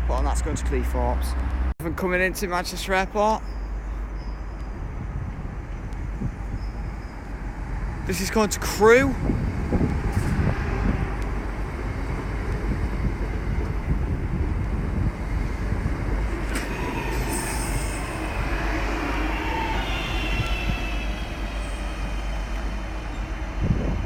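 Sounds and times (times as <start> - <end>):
train rumbling: 0.0 - 24.0
high-pitched brake squeal: 6.5 - 7.3, 16.3 - 23.9.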